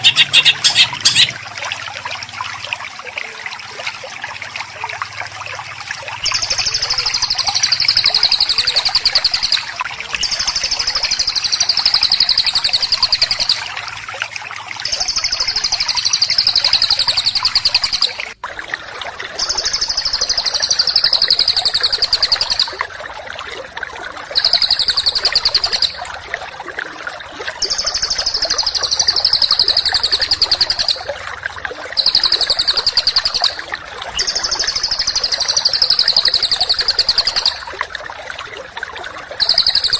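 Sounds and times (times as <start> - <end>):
songbird rapid trill: 0.0 - 1.4, 6.2 - 13.8, 14.8 - 18.4, 19.4 - 22.8, 24.4 - 26.0, 27.6 - 31.1, 32.0 - 37.7, 39.4 - 39.9
running water: 0.0 - 39.9.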